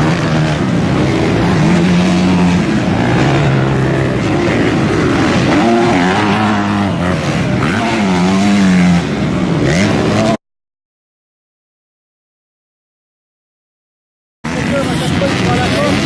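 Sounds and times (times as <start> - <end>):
motocross bike engines revving: 0.0 - 10.4, 14.5 - 16.0.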